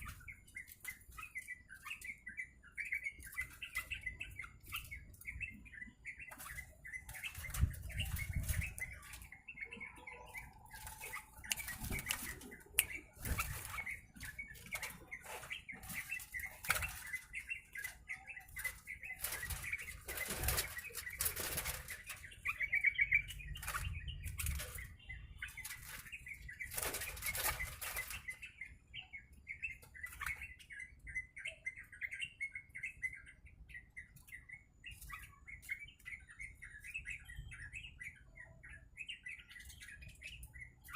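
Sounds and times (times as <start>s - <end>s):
soft bird chirps: 0.0s - 40.9s
bird wings fluttering: 10.6s - 22.3s, 25.6s - 28.3s.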